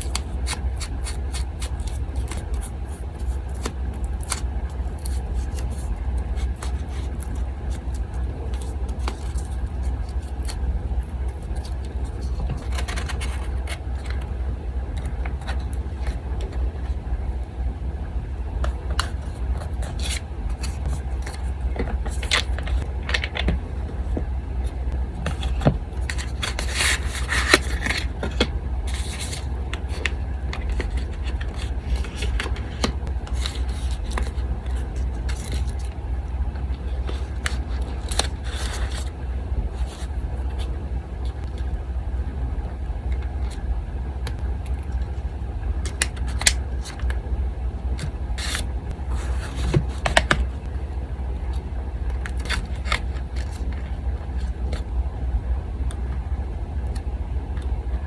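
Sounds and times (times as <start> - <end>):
paper rustling and scraping: 0.0 - 14.3, 18.6 - 22.9, 24.6 - 35.9, 36.8 - 39.1, 39.7 - 40.7, 48.4 - 50.4
electric fan humming: 0.0 - 58.0.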